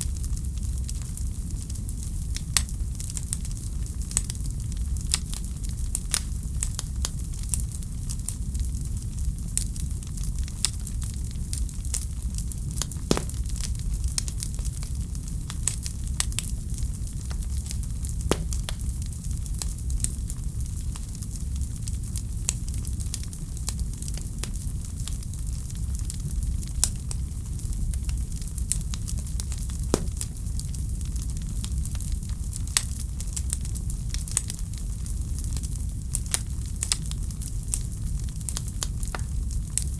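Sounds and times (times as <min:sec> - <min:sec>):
wood fire crackling: 0:13.1 - 0:13.7, 0:18.2 - 0:18.9, 0:29.9 - 0:30.7
loud fire pops: 0:13.1 - 0:13.9, 0:18.2 - 0:19.0, 0:29.9 - 0:30.7.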